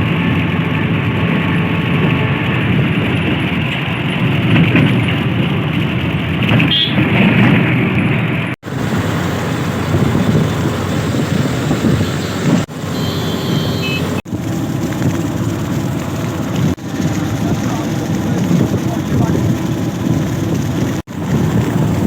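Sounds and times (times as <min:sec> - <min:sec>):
vehicle rumbling: 0:00.0 - 0:22.0
brief high tone: 0:11.8 - 0:14.2.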